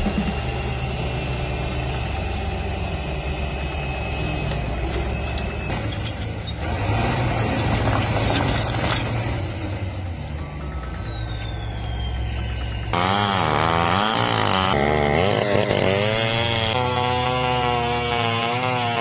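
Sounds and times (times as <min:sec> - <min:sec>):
high whine: 0:00.0 - 0:06.3
heavy machine engine droning: 0:00.0 - 0:19.0.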